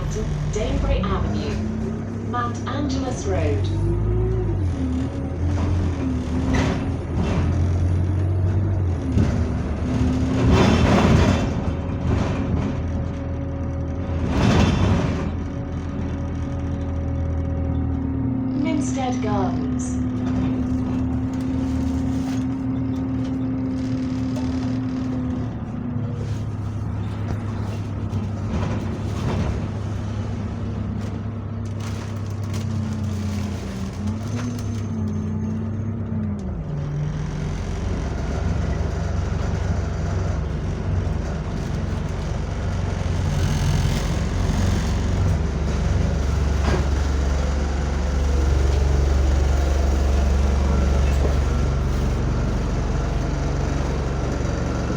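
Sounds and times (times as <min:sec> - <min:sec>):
bus drivetrain whine: 0:00.0 - 0:54.9
bus engine idling drone: 0:00.0 - 0:54.9.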